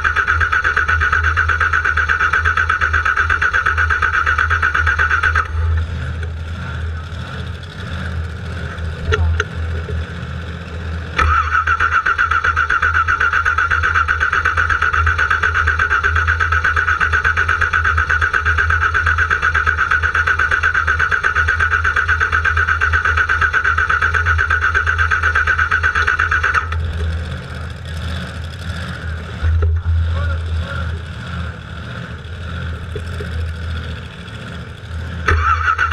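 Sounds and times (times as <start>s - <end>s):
car engine cranking: 0.0s - 35.9s.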